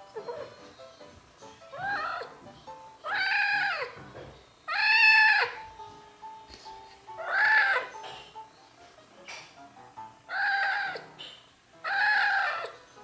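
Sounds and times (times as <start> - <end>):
kitten meowing loudly: 3.1 - 3.9, 4.7 - 5.6, 7.2 - 7.9, 10.3 - 11.0, 11.9 - 12.7.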